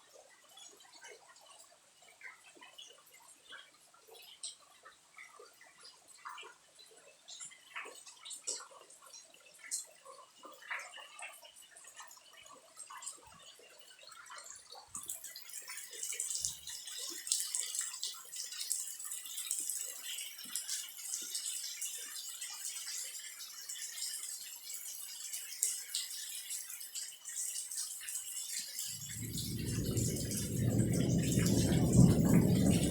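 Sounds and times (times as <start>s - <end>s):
raindrops dripping and tapping: 0.0s - 32.9s
steady hiss of falling rain: 27.7s - 32.9s.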